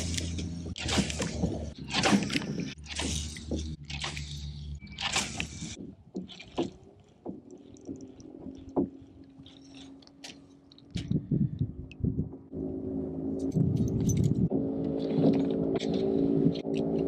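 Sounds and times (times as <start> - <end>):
water sloshing around a kayak: 0.0 - 11.5, 13.3 - 17.0
gear knocks and clicks: 0.0 - 12.4, 13.4 - 17.0
dull thuds: 5.0 - 10.4.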